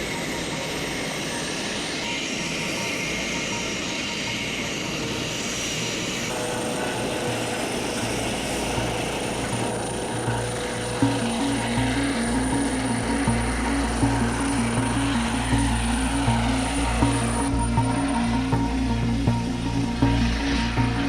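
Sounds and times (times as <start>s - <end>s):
helicopter turbines humming: 0.0s - 21.0s
high turbine whine: 0.0s - 21.0s
music with pulsing beat: 6.3s - 21.0s.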